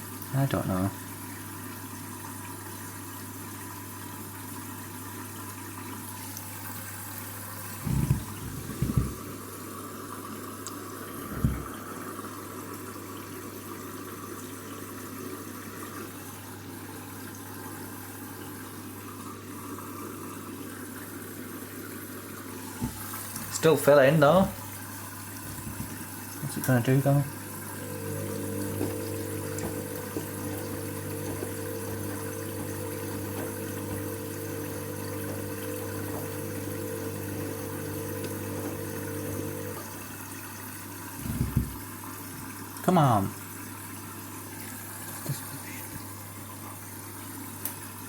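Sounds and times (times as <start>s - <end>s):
water running into drum: 0.0s - 9.7s, 11.0s - 18.7s, 22.3s - 48.0s
dull thumps: 7.8s - 9.2s, 11.3s - 11.7s, 25.4s - 26.1s, 41.2s - 41.8s.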